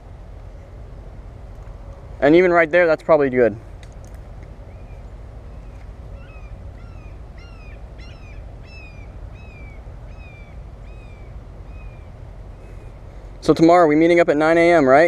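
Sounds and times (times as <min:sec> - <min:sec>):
low background rumble: 0:00.0 - 0:15.0
bird calling falling notes: 0:04.7 - 0:12.2.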